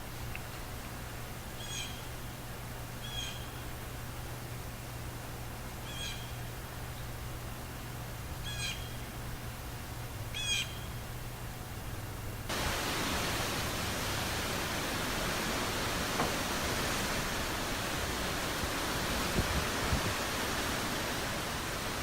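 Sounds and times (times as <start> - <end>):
low background hum: 0.0 - 22.0
harsh bird calls: 10.4 - 11.0
rushing hiss: 12.5 - 22.0.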